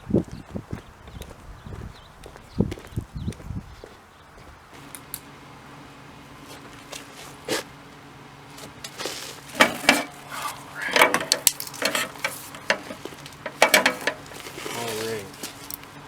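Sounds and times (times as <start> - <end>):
low steady hum: 4.8 - 16.0
metal tools clinking: 8.8 - 15.9.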